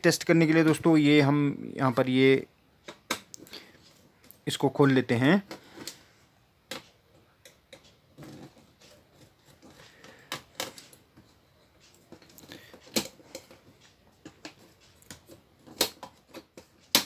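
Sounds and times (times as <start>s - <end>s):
clicks and knocks of tools: 6.7s - 17.0s.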